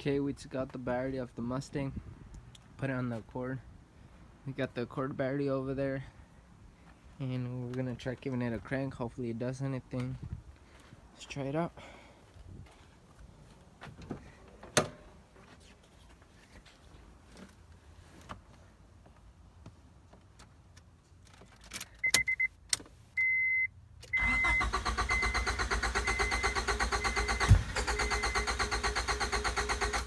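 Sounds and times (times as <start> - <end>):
starter cranking engine: 24.2 - 30.0.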